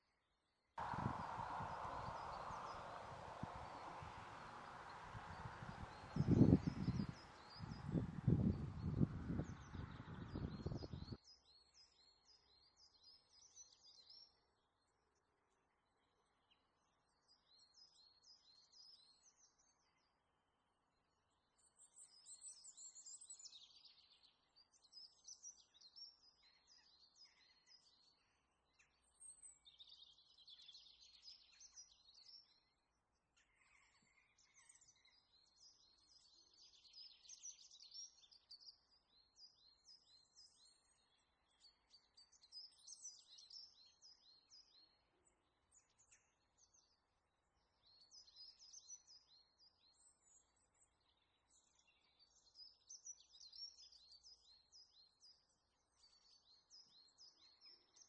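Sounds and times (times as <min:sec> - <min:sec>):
faint birdsong: 0:00.0 - 0:58.0
faint outdoor hiss: 0:00.8 - 0:10.9.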